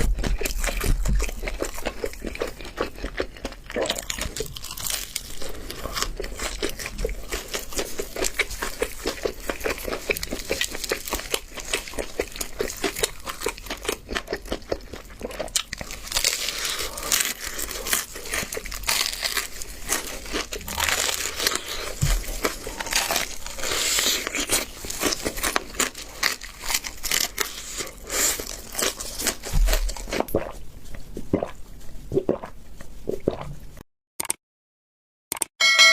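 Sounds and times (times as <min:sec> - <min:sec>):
meat tearing: 0:00.0 - 0:30.5
crunching and chewing fried chicken: 0:00.0 - 0:33.5.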